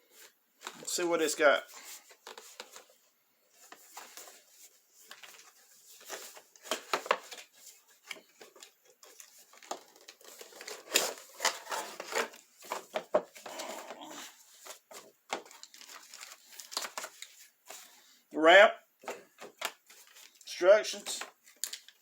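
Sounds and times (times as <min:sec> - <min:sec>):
packaging crinkling and tearing: 0:03.6 - 0:17.9, 0:21.1 - 0:22.0.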